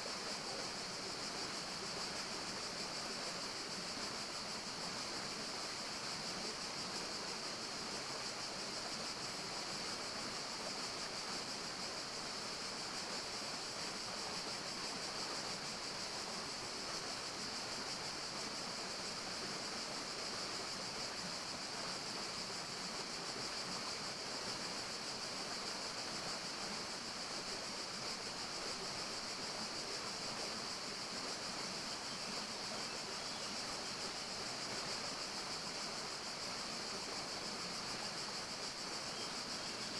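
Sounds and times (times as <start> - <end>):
steady high-pitched hiss: 0.0 - 39.9.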